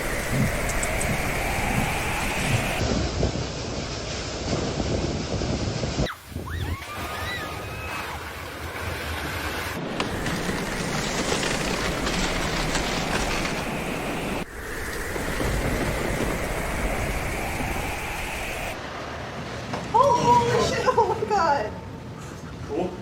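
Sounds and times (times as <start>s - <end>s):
wind buffeting microphone: 0.0s - 8.0s, 9.8s - 18.8s
rushing floodwater: 0.0s - 23.0s.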